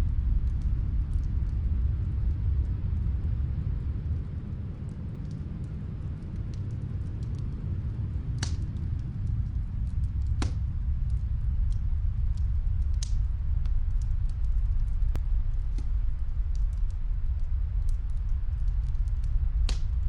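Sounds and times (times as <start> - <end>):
snowstorm wind rumble: 0.0 - 20.0
wood fire crackling: 0.0 - 20.0.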